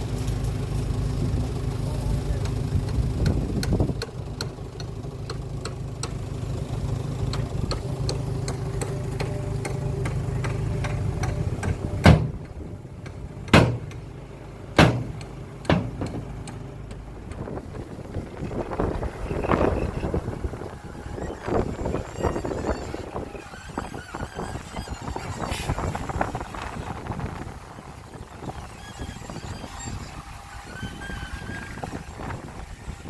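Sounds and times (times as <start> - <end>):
heavy diesel engine running: 0.0 - 33.0
loud sharp thumps: 13.5 - 14.0, 14.8 - 16.3.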